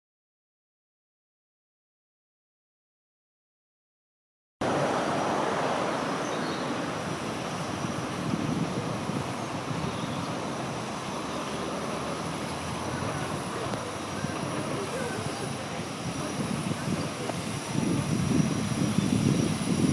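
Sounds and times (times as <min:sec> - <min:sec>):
train rumbling on rails: 0:04.6 - 0:19.9.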